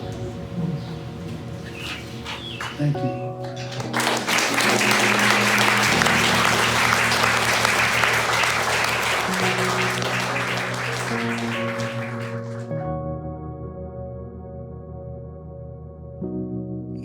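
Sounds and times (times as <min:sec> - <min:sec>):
people clapping: 0:01.7 - 0:12.7.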